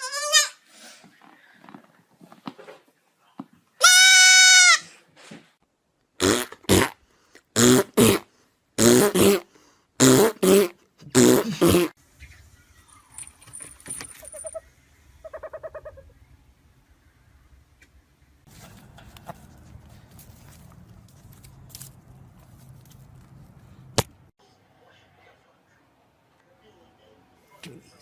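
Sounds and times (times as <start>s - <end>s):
animal calling loudly: 14.2s - 16.2s.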